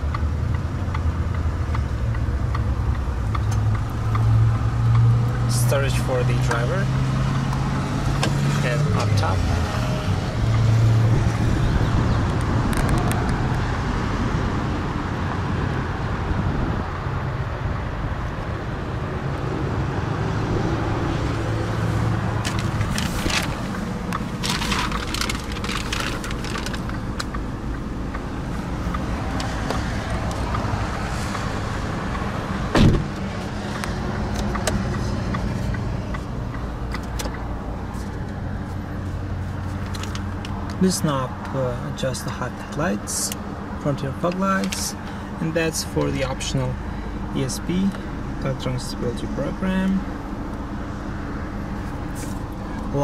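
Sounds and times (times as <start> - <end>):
car engine idling hum: 0.0 - 53.0
scratchy rustling: 22.4 - 27.0.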